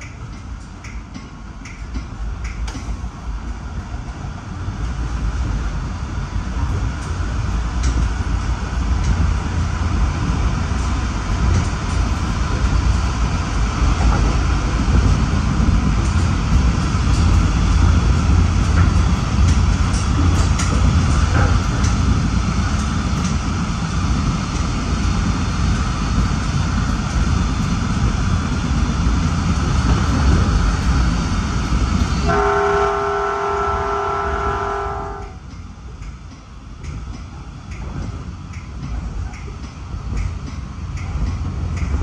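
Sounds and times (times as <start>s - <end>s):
train rumbling on rails: 0.0s - 42.0s
train horn chord: 32.2s - 35.4s.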